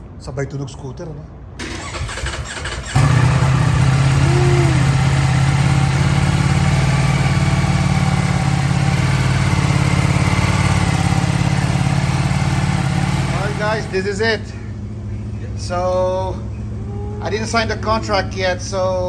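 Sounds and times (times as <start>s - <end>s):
motorcycle engine idling: 1.6s - 14.2s.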